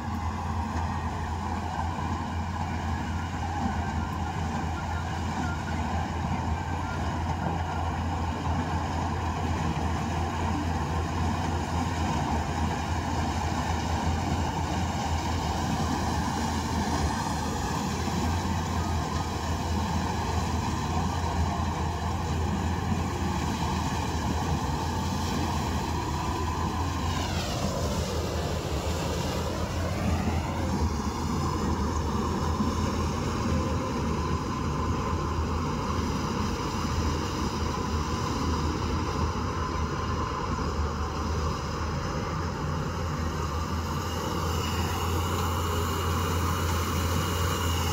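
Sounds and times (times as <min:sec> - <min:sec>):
combine harvester engine drone: 0:00.0 - 0:47.9.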